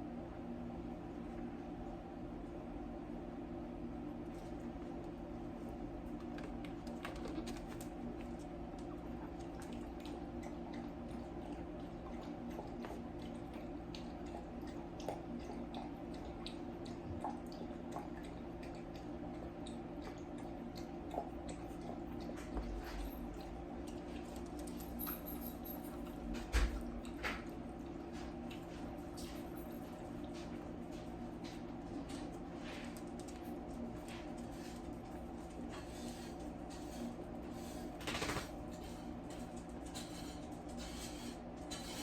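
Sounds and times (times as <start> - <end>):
steady low hum: 0.0 - 42.0
puppies wet smacking clicks: 6.1 - 22.7.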